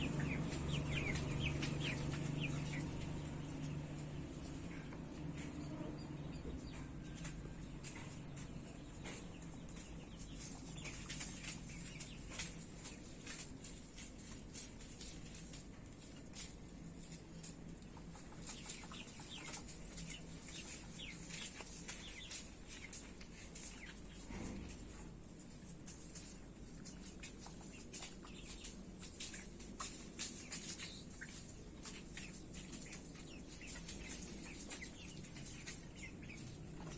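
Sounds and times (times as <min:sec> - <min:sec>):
steady low hum: 0:00.0 - 0:26.9
chickens calling: 0:00.0 - 0:36.9.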